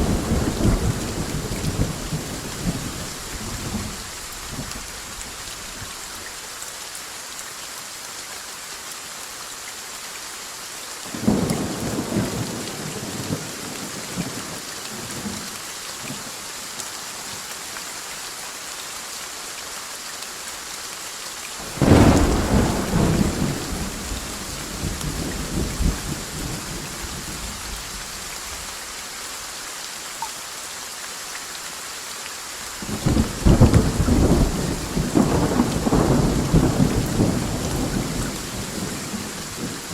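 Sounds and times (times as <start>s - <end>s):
thunder rumbling: 0.0s - 4.7s, 21.6s - 27.6s, 32.9s - 39.9s
steady rain: 0.0s - 39.9s.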